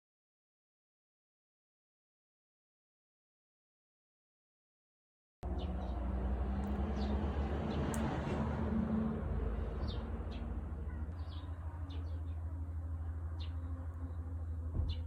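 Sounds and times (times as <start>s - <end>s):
small birds chirping: 5.4s - 8.4s, 9.4s - 15.0s
low outdoor rumble: 5.4s - 15.0s.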